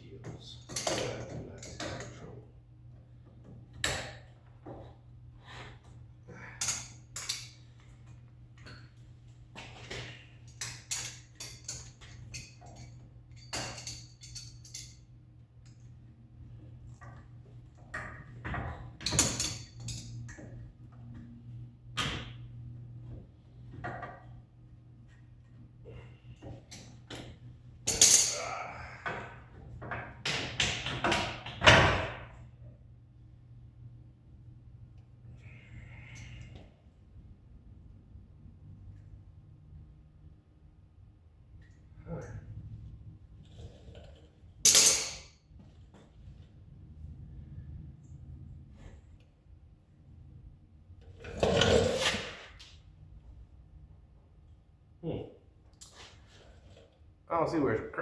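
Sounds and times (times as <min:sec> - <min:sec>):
metal tools clinking: 0:00.6 - 0:02.2, 0:06.6 - 0:07.8, 0:10.2 - 0:15.1, 0:19.0 - 0:20.4, 0:27.9 - 0:28.5, 0:44.7 - 0:45.3.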